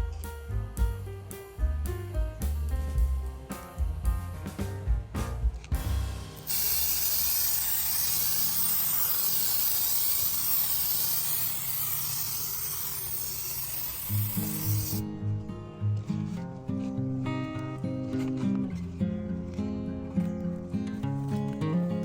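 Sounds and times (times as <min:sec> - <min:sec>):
steady high hiss: 0:06.3 - 0:15.0
guitar music: 0:14.0 - 0:22.0.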